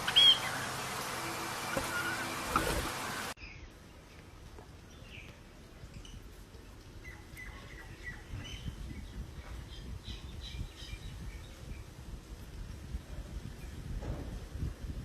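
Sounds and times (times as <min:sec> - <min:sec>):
small parrots chirping: 0:00.0 - 0:01.0.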